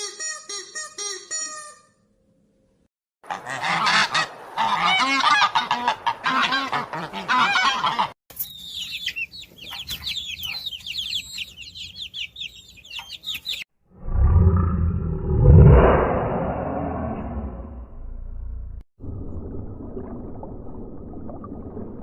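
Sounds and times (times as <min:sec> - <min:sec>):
waterfowl honking: 0:03.3 - 0:08.2
high-pitched falling bird calls: 0:08.3 - 0:13.7.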